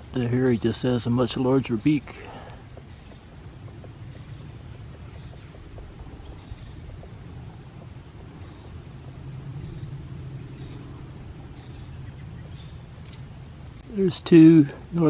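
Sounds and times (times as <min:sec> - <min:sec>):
crickets trilling: 0:00.0 - 0:15.0
low steady rumble: 0:00.0 - 0:15.0.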